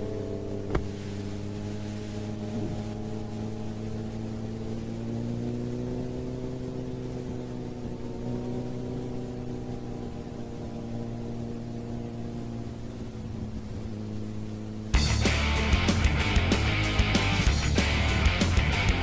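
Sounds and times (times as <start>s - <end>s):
motorcycle engine droning: 0.0s - 19.0s.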